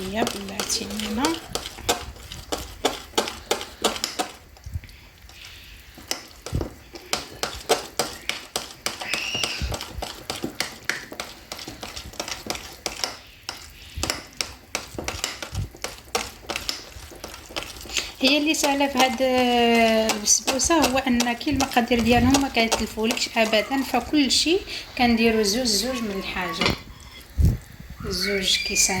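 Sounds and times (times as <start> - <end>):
utensil clicking against mixing bowl: 0.0 - 4.4, 6.0 - 23.8.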